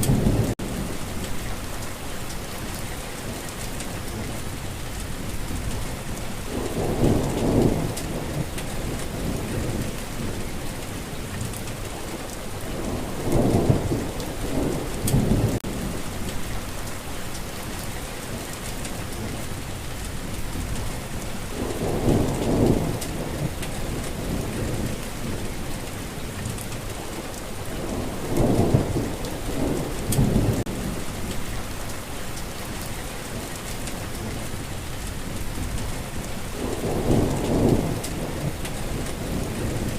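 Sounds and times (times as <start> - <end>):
steady rain: 0.0 - 39.9
low rolls of thunder: 5.2 - 16.9, 20.4 - 31.6, 35.2 - 39.9.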